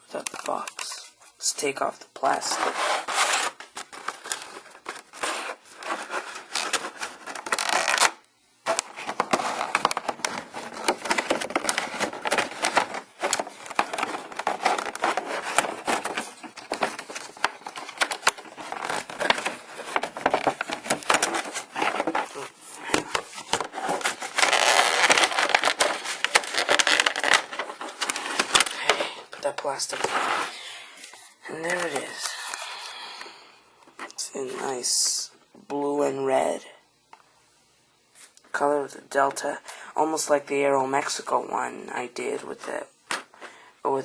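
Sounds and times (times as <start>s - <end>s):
plastic wrapping crinkling: 2.3s - 32.7s.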